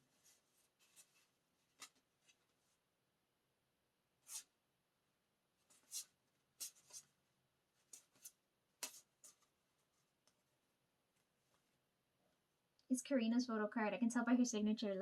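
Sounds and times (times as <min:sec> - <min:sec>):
paper rustling and scraping: 0:00.0 - 0:02.7.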